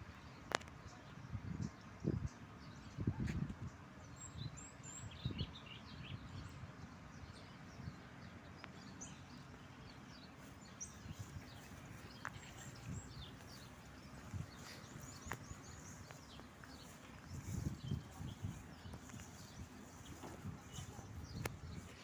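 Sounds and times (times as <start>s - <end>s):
songbirds chirping: 0.0s - 22.0s
low uneven rumble: 6.1s - 22.0s.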